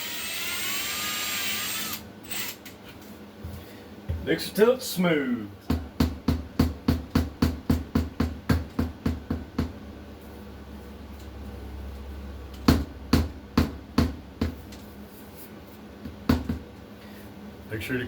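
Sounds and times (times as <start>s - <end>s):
drill motor hum: 0.0s - 2.6s.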